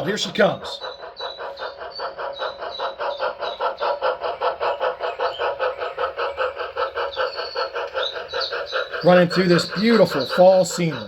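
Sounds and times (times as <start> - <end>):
model train steam chuffs: 0.0 - 11.0.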